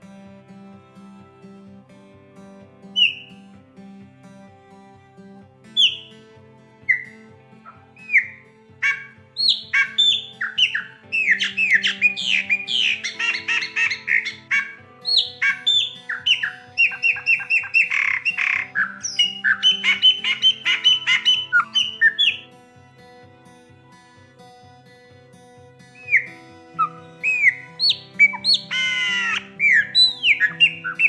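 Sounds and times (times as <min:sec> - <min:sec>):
soft background music: 0:00.0 - 0:31.0
blackbird whistling song: 0:09.4 - 0:22.4, 0:26.0 - 0:26.2, 0:26.8 - 0:31.0.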